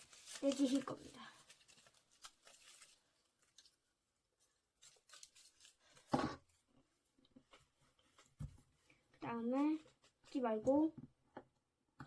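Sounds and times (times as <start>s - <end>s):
paper clicks and rustles: 0.0s - 3.8s.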